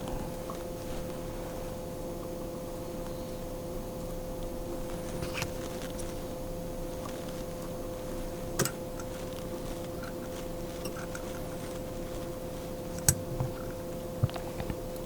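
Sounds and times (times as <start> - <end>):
hands handling tools clicking: 7.0 - 13.8.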